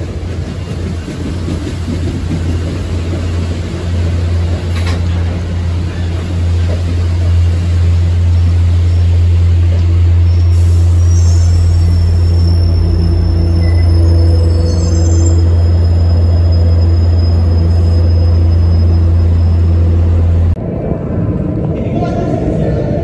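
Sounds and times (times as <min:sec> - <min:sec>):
train rumbling past: 0:00.0 - 0:23.0
high-pitched wheel squeal: 0:10.2 - 0:20.0.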